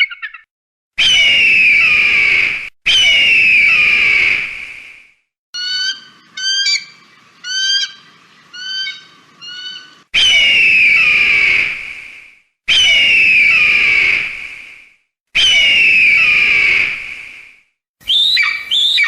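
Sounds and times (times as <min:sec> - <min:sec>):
bird of prey piping calls: 0:00.0 - 0:02.0, 0:05.6 - 0:11.3, 0:18.0 - 0:19.0
bird of prey hoarse screams: 0:01.0 - 0:04.4, 0:05.6 - 0:11.8, 0:18.0 - 0:19.0.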